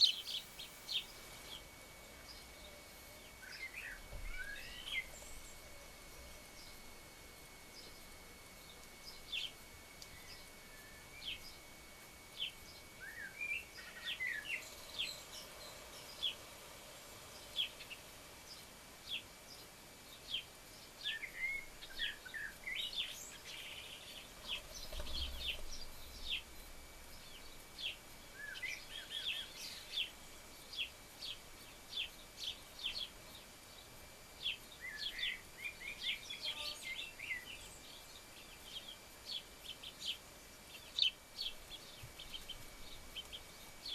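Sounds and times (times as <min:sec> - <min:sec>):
birds chirping: 0:00.0 - 0:05.8, 0:17.3 - 0:43.9.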